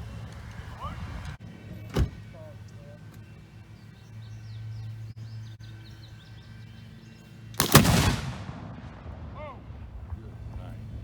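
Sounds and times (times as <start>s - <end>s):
birds chirping: 0.0s - 11.0s
loud rifle shot: 7.6s - 9.9s.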